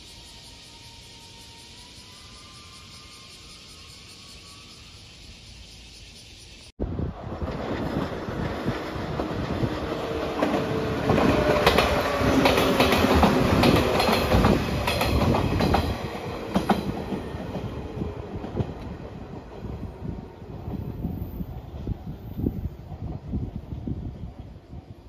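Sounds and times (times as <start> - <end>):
electric train passing: 0.0 - 25.0
wheels clacking over rail joints: 7.4 - 19.8.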